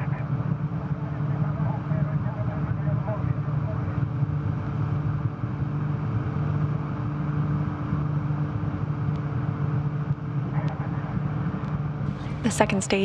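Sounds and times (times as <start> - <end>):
constant low hum: 0.0 - 13.0
steady rumbling noise: 0.0 - 13.0.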